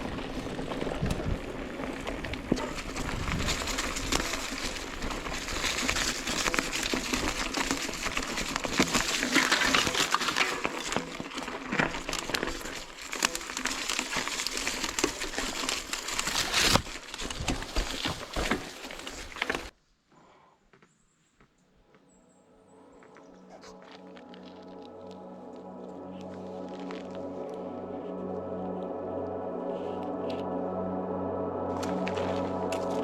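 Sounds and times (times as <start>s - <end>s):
bike clicking and rattling: 0.0s - 19.7s
bike tyres crunching on stones: 0.0s - 19.8s, 22.9s - 30.5s, 31.2s - 33.0s.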